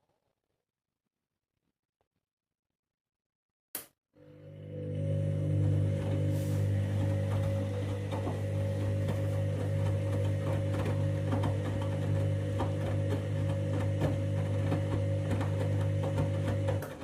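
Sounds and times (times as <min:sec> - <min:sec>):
washing machine motor humming: 0:04.2 - 0:17.0.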